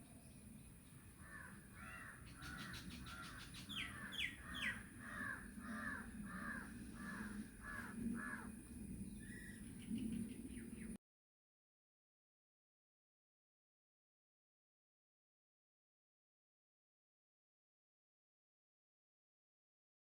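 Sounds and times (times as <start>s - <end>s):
bird harsh calls: 1.2s - 8.5s.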